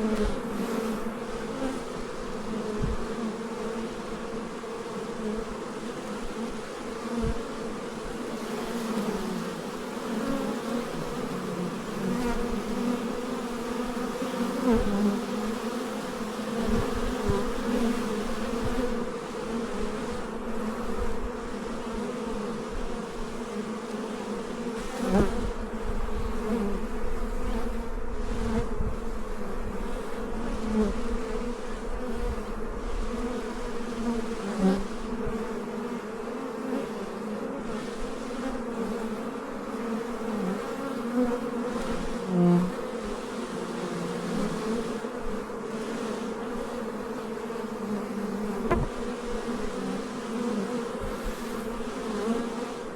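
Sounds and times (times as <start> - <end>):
bees buzzing: 0.0 - 52.9
single bee buzzing past: 0.0 - 52.9.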